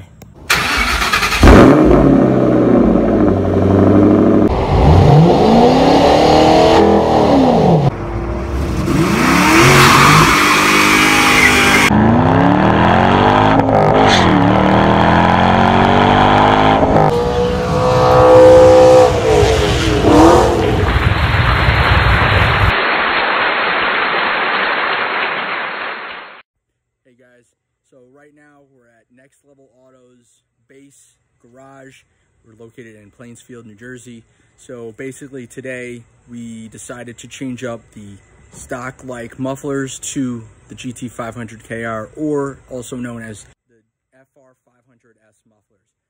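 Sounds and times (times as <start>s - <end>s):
car engines revving: 0.5s - 21.2s.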